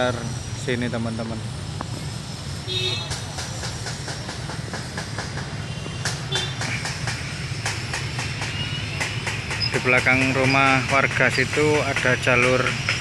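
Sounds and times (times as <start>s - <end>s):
train wheels clicking over rail joints: 3.0s - 13.0s.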